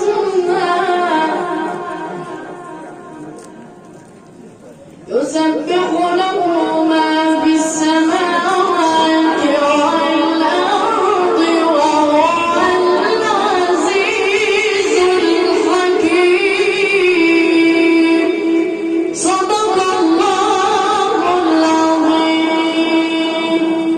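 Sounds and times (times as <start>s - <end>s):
child chanting melodically: 5.1s - 23.9s.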